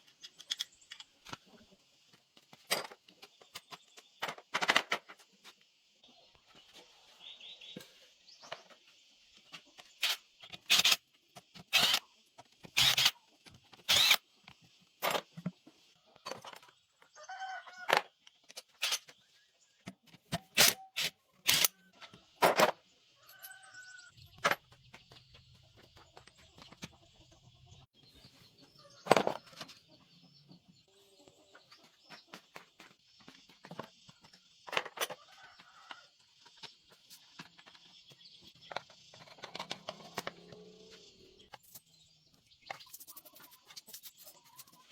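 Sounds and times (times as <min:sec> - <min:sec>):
chickens clucking: 0:01.1 - 0:02.3, 0:21.3 - 0:41.6, 0:42.7 - 0:44.9.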